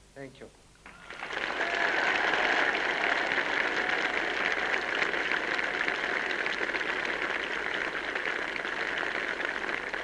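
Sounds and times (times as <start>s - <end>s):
crowd applauding: 0.8s - 10.0s.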